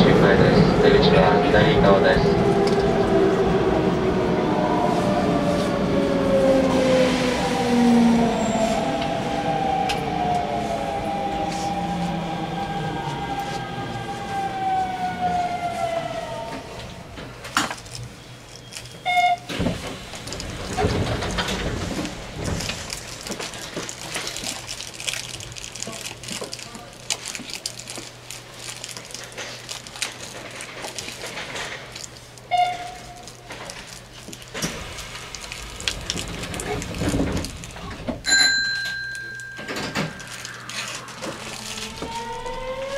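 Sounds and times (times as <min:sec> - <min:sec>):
electric train hum: 0:00.0 - 0:42.9
wheel and rail rumble: 0:00.0 - 0:42.9
clicks and crackles: 0:20.2 - 0:38.2
electric train motors whining: 0:39.6 - 0:42.9.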